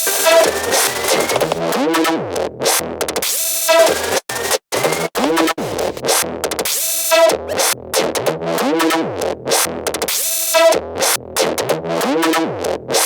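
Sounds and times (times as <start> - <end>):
synthesizer stabs: 0.0 - 1.6
drum-machine beats: 0.0 - 1.7.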